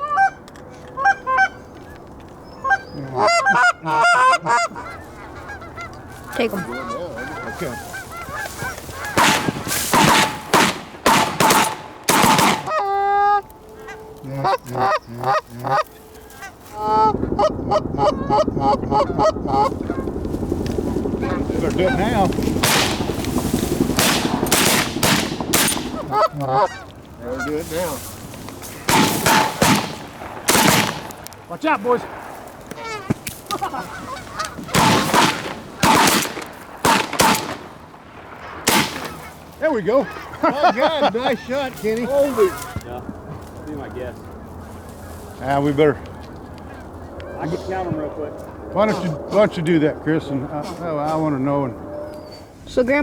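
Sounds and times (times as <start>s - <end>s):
geese honking: 0.0s - 52.8s
loud shotgun blasts: 7.3s - 12.9s, 17.3s - 26.4s, 28.6s - 41.0s.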